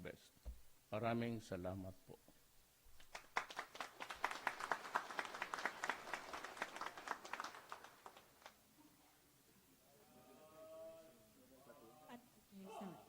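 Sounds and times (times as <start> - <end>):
audience applauding: 3.0 - 8.6.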